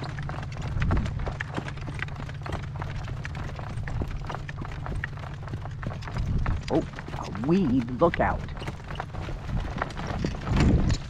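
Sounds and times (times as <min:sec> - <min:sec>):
wind rumbling on microphone: 0:00.0 - 0:01.5, 0:05.8 - 0:11.0
horse hooves clopping: 0:00.0 - 0:11.0.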